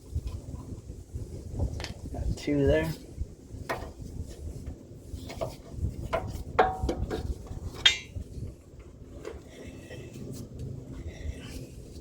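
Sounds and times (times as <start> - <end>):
metal tools clinking and scraping: 7.7 - 8.2.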